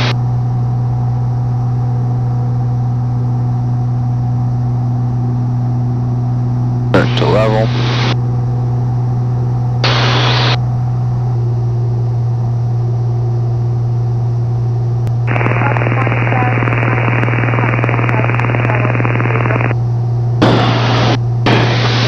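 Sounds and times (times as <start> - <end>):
aircraft engine droning: 0.0 - 22.0
radio static: 6.9 - 8.2, 9.8 - 10.6, 15.1 - 19.8, 20.4 - 22.0.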